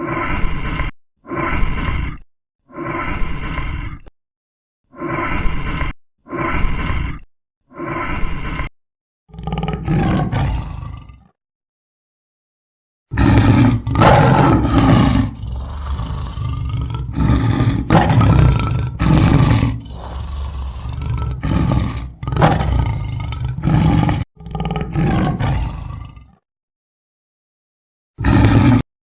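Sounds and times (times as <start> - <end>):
animal giving deep calls: 13.2 - 26.4.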